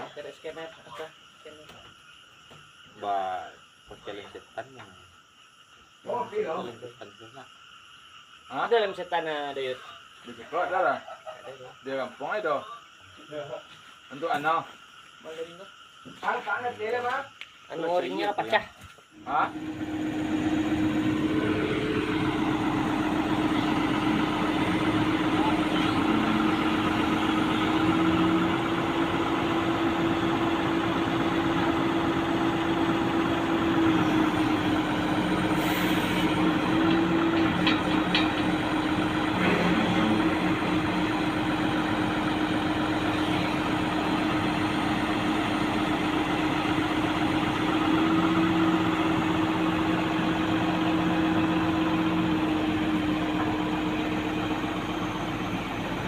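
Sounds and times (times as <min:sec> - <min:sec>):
heavy equipment engine idling: 0:19.3 - 0:56.0.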